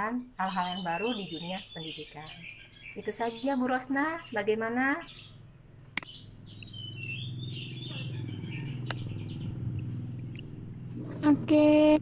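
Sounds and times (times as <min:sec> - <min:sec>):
birds chirping: 0:00.0 - 0:11.0
steady low hum: 0:02.9 - 0:12.0.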